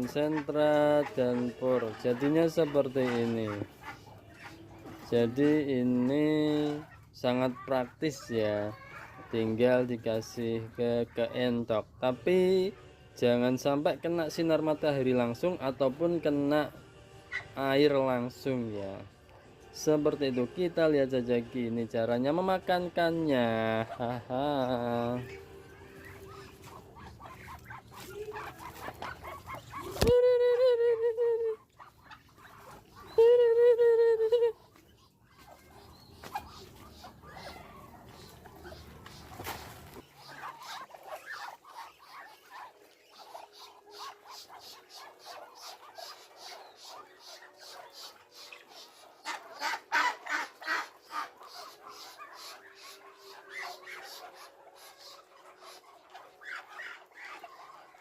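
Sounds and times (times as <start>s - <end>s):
ducks pecking at dry feed: 0.0s - 10.3s, 23.4s - 30.2s, 31.5s - 33.2s, 34.6s - 58.0s.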